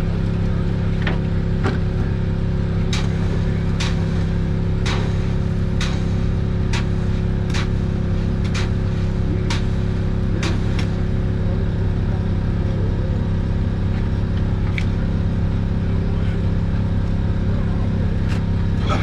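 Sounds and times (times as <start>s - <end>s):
boat engine running: 0.0s - 19.0s
water splashing against hull: 2.9s - 11.2s.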